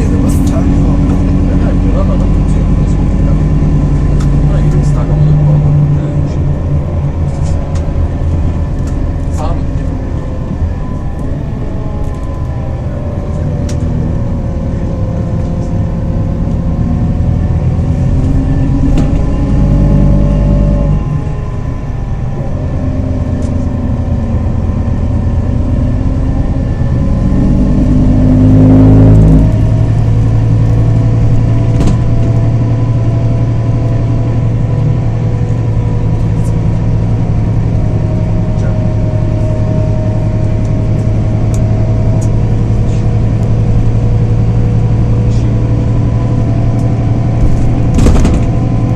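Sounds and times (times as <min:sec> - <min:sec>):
bus diesel engine accelerating: 0:00.0 - 0:48.9.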